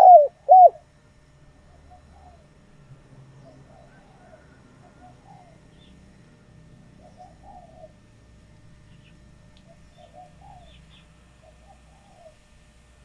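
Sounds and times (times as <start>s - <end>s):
dove cooing: 0.0s - 0.8s, 1.7s - 2.6s, 3.4s - 5.7s, 6.9s - 8.0s, 9.7s - 12.5s
steady low hum: 0.0s - 13.0s
small birds chirping: 8.8s - 12.4s.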